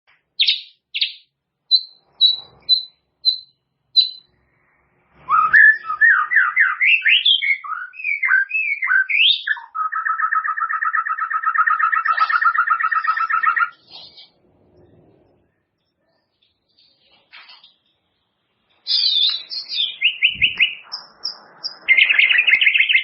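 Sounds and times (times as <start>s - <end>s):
bird singing whistled notes: 0.4s - 4.3s, 5.2s - 14.4s, 18.8s - 23.0s.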